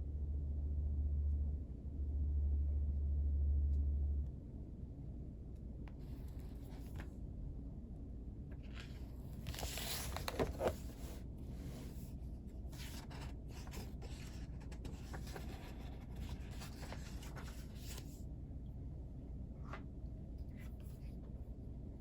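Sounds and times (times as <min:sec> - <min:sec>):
paper rustling and scraping: 0:08.6 - 0:18.2.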